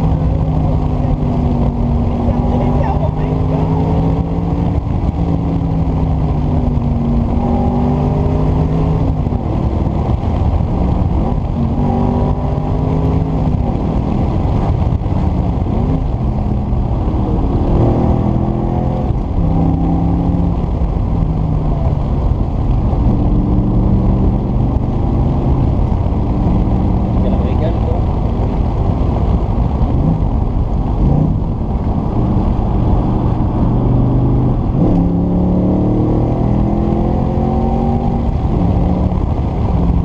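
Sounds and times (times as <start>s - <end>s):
car engine accelerating: 0.0s - 40.0s.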